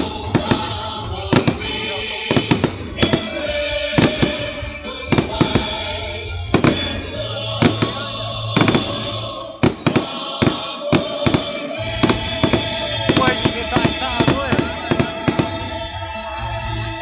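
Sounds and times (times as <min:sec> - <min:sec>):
fireworks bursting: 0:00.0 - 0:16.6
music playing: 0:00.0 - 0:17.0.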